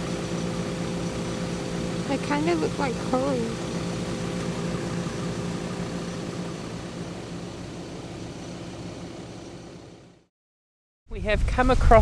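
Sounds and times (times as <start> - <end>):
vehicle engine humming: 0.0 - 10.3.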